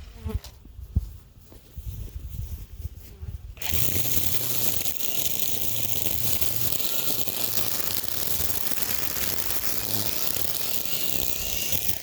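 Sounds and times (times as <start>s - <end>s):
string trimmer buzzing: 3.6s - 12.0s.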